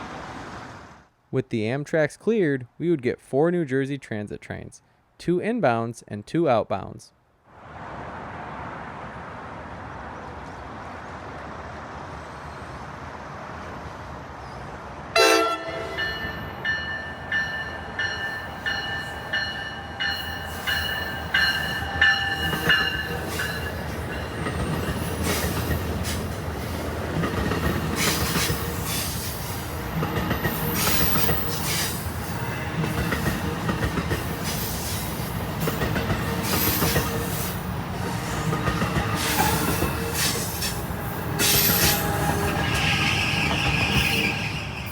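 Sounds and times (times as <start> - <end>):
train rumbling: 7.6 - 44.9
train horn blast: 15.1 - 16.4
train wheel squeal: 30.4 - 33.4, 36.1 - 37.6, 38.2 - 44.9
wheels clicking over rail joints: 32.8 - 44.1.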